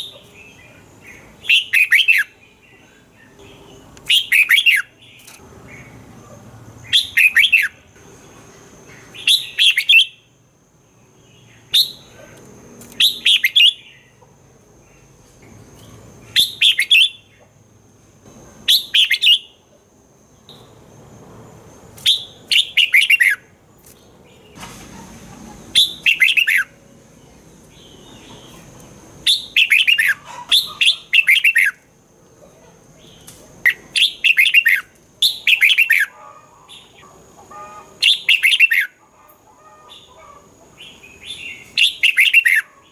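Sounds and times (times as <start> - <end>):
bird singing warbling phrases: 0.0 - 6.0, 6.8 - 7.8, 9.0 - 10.3, 13.0 - 14.2, 15.8 - 17.4, 18.7 - 19.6, 22.1 - 23.5, 25.7 - 26.8, 27.7 - 31.9, 33.0 - 39.0, 39.7 - 42.9.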